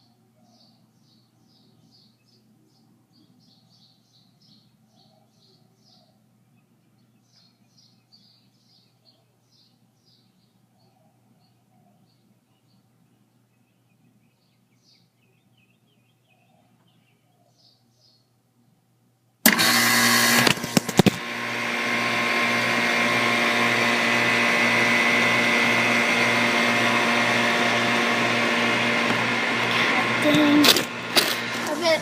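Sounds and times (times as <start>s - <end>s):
faint bird chirps: 0.0s - 18.4s
air conditioner unit running: 19.4s - 32.0s.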